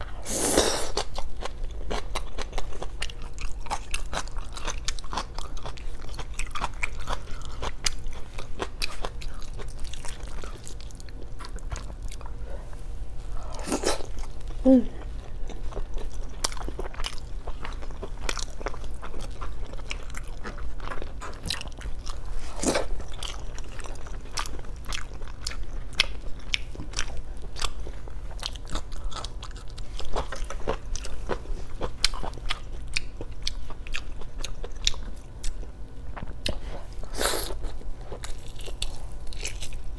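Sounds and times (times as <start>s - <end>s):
faint low hum: 0.0s - 39.9s
wet chewing with mouth clicks: 15.2s - 39.9s.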